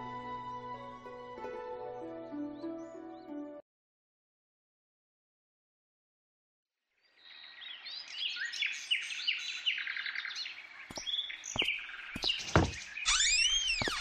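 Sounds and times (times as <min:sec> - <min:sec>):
birds chirping: 0:07.3 - 0:14.0.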